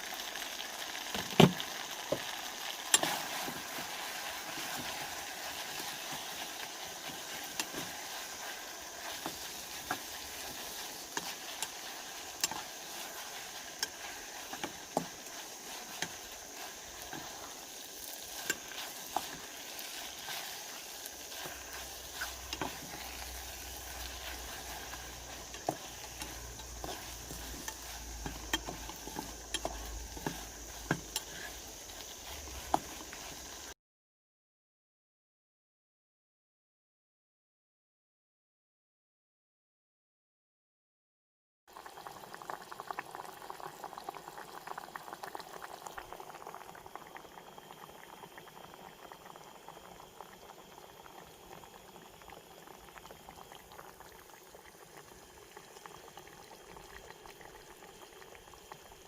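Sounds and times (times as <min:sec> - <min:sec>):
food sizzling in a frying pan: 0:00.0 - 0:33.8, 0:41.7 - 0:59.0
utensil clicking and tapping: 0:25.4 - 0:31.3.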